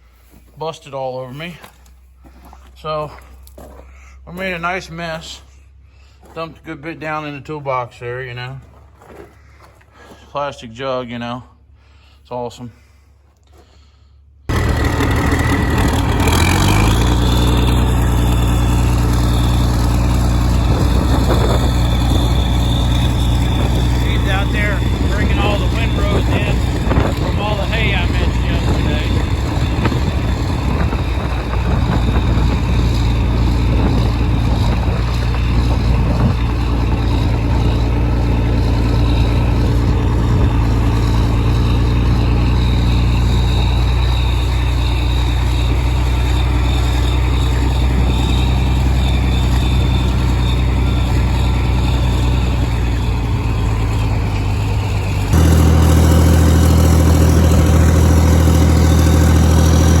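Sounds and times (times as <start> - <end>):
tractor engine running: 14.5 - 60.0.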